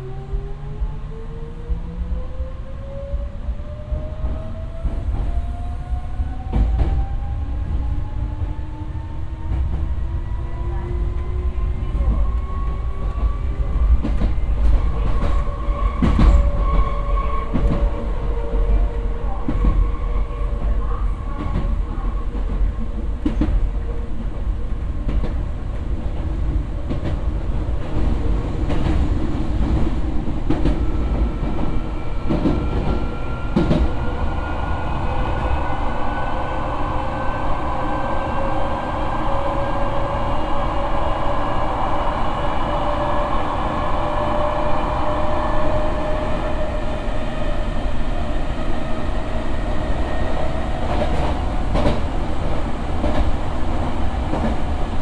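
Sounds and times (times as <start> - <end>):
wheels rumbling on rail: 0.0 - 55.0.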